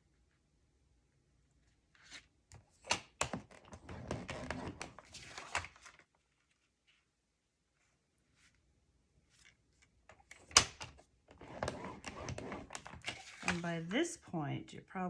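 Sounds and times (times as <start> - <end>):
cardstock scraping and rustling: 11.3 - 13.9.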